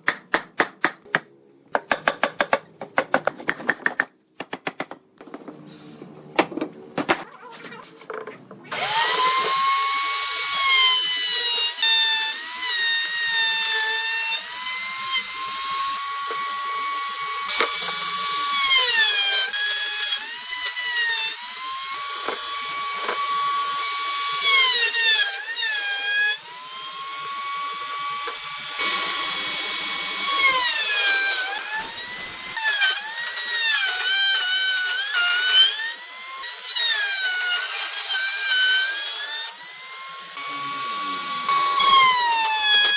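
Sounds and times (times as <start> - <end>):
power drill whining into wood: 8.7 - 42.9.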